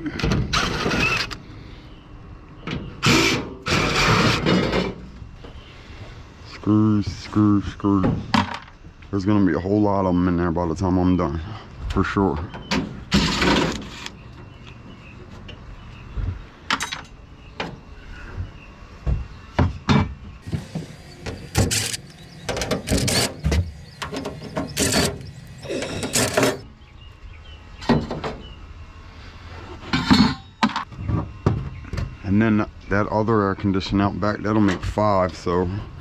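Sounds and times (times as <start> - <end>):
sheet metal clanking and scraping: 2.7 - 5.2, 12.4 - 14.1, 20.0 - 26.7.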